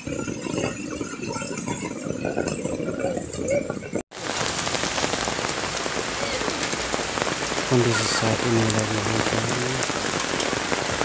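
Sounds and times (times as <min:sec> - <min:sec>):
rain falling: 0:00.0 - 0:11.0
heavy rain hissing on ground: 0:04.1 - 0:11.0
faint people's voices: 0:07.7 - 0:09.8.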